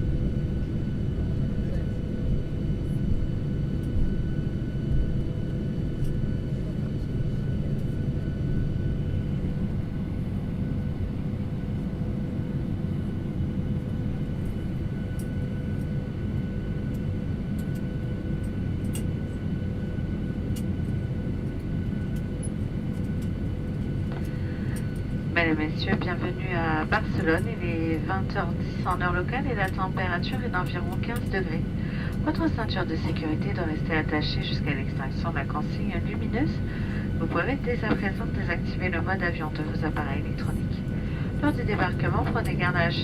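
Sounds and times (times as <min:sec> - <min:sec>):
jet engine and air rumble: 0:00.0 - 0:43.0.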